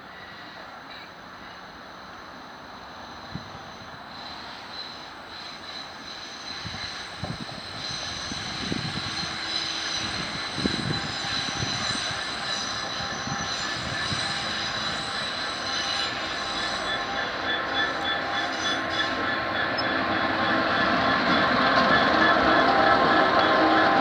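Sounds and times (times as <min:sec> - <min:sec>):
train rumble: 0:00.2 - 0:24.0
high-pitched ringing tones: 0:05.5 - 0:24.0.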